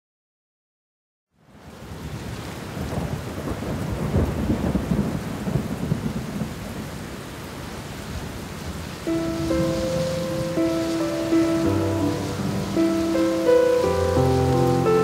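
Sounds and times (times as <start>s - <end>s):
rain-like rushing noise: 1.3s - 15.0s
music with held notes: 9.1s - 15.0s.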